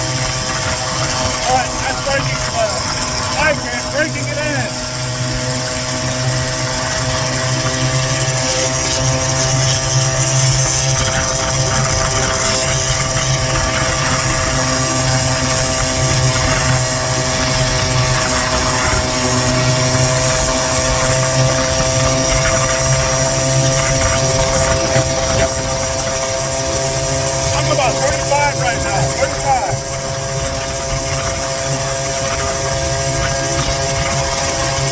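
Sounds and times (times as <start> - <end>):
scooter engine buzzing: 0.0 - 34.9
low ride rumble: 0.8 - 5.1.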